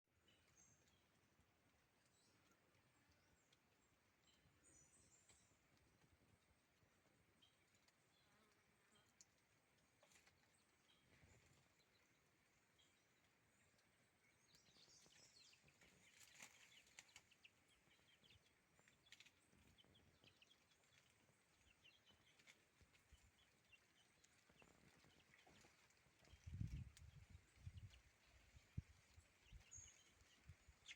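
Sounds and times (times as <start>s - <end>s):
bird chirps: 10.4s - 30.9s.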